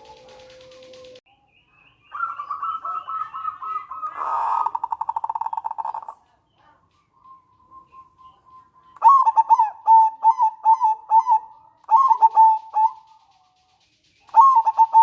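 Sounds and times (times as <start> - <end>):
dove cooing and rattling: 0.0 - 1.2, 4.2 - 6.2, 14.4 - 15.0.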